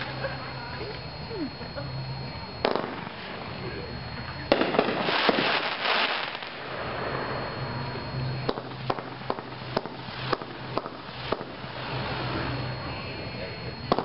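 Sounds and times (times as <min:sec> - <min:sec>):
fireworks crackling hiss: 0:00.0 - 0:14.0
fireworks sharp bangs: 0:02.6 - 0:07.5, 0:08.2 - 0:12.7.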